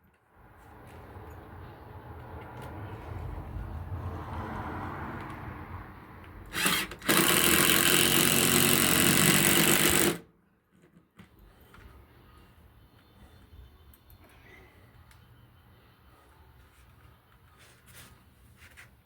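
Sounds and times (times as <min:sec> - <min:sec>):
power tool humming: 0:06.6 - 0:10.2.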